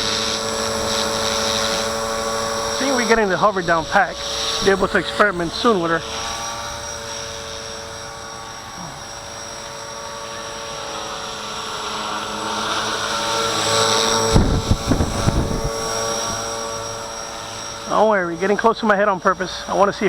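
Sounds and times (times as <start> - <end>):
rc helicopter motor and rotor whine: 0.0 - 20.0
wind buffeting microphone: 0.8 - 6.5, 13.3 - 17.3.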